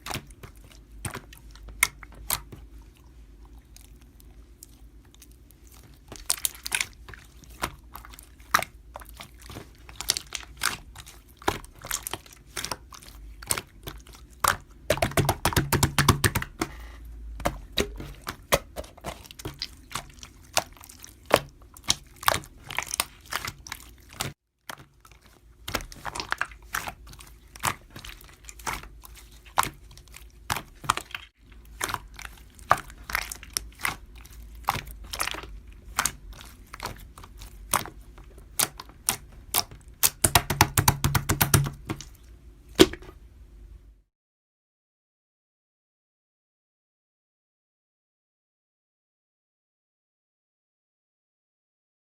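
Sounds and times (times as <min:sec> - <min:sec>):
clicks and taps on hard surface: 0:40.0 - 0:42.1.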